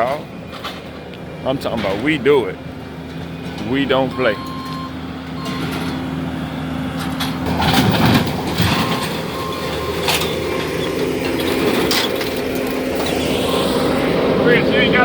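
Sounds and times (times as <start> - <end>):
diesel engine running: 0.0 - 15.0
debris knocking and clanking: 7.0 - 13.3.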